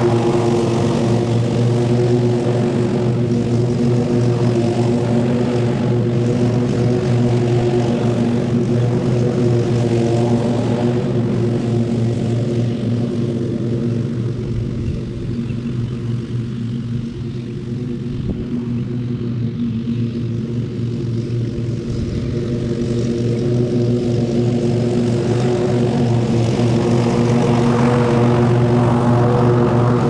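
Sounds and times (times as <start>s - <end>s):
small gasoline engine running: 0.0s - 30.0s.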